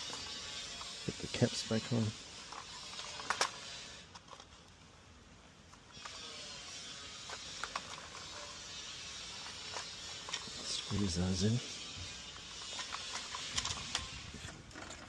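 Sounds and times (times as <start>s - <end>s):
plastic caps clicking: 2.5s - 4.8s, 7.2s - 8.5s, 12.4s - 15.0s.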